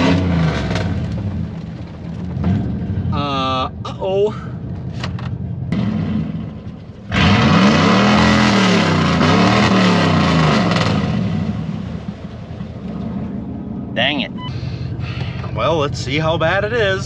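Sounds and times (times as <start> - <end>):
truck engine revving hard: 0.0 - 1.4, 5.7 - 12.2.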